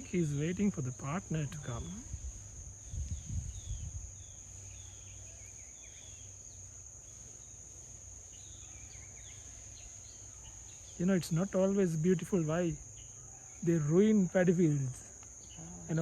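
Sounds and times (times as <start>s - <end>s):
crickets droning: 0.0s - 16.0s
small birds chirping: 0.0s - 16.0s.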